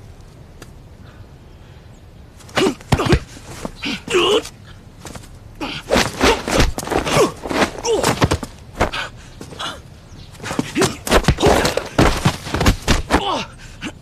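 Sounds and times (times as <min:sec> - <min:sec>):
bodies thudding and scuffing: 0:02.4 - 0:09.7, 0:10.3 - 0:13.4
men grunting with effort: 0:02.5 - 0:04.6, 0:05.6 - 0:12.3, 0:12.9 - 0:14.0.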